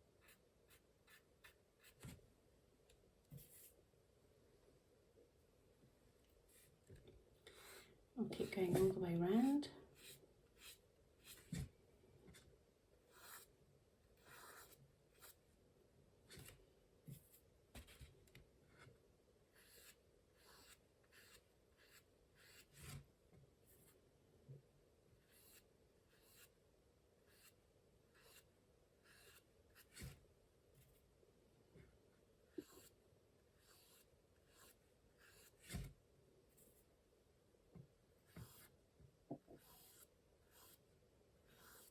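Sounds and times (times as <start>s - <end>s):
paintbrush strokes on paper: 3.3s - 3.8s, 6.4s - 6.8s, 7.5s - 11.7s, 13.0s - 13.5s, 14.2s - 15.4s, 19.5s - 23.0s, 27.2s - 30.1s, 33.6s - 35.9s, 38.2s - 38.8s, 39.4s - 41.9s.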